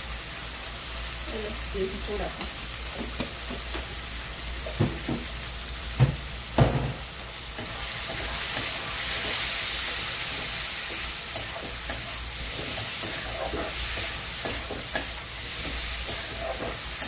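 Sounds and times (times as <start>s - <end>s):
food sizzling in hot oil: 0.0s - 17.0s
spatula knocking on pan: 4.8s - 5.3s, 6.0s - 7.0s
spatula scraping metal pan: 11.4s - 17.0s.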